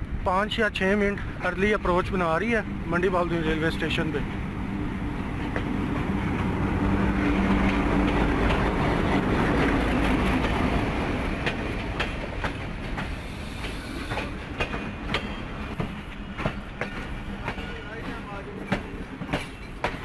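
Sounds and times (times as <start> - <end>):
locomotive engine hum: 1.2 - 20.0
wheels clicking over rail joints: 7.4 - 20.0.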